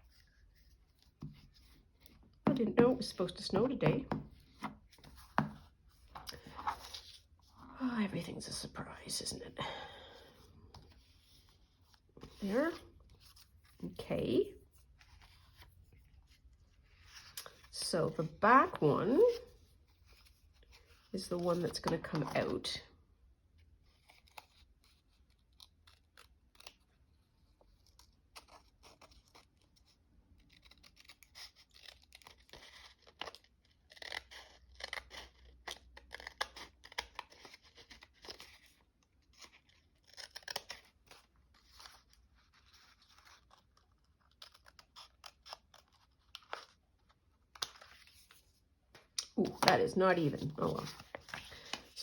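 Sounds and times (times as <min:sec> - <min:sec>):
paper crinkling and rustling: 0:27.5 - 0:52.0.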